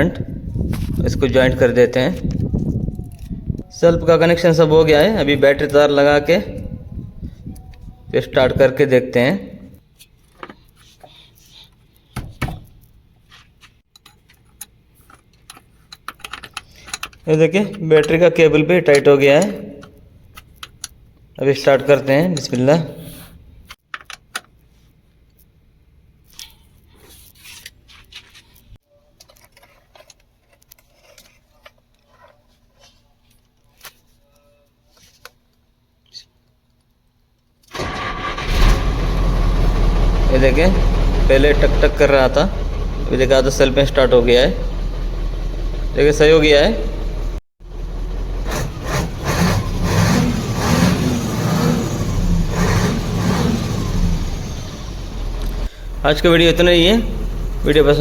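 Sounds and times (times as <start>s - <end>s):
handling clicks and scrapes: 9.8s - 18.2s, 26.2s - 36.9s
truck diesel engine pulsing: 37.8s - 58.0s.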